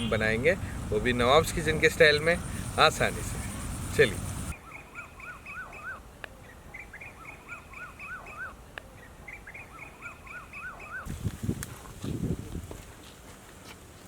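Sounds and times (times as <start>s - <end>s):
small bird singing: 2.3s - 11.1s.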